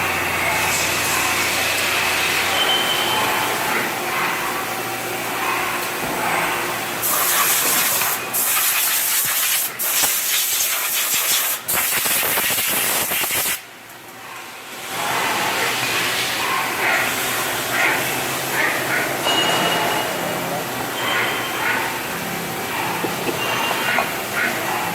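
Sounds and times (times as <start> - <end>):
loud steady hiss: 7.0 - 13.7.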